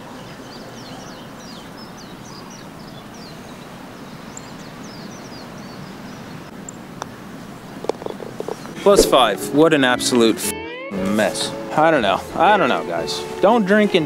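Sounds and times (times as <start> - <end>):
small birds chirping: 0.0 - 9.3
steady outdoor hiss: 0.0 - 14.0.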